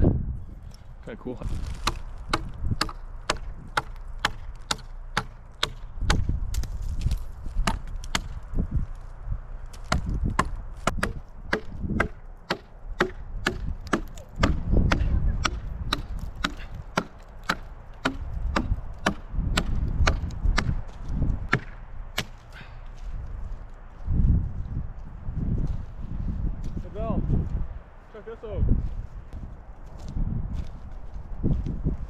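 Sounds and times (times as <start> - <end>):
axe chopping firewood: 1.5 - 8.5, 9.7 - 22.7.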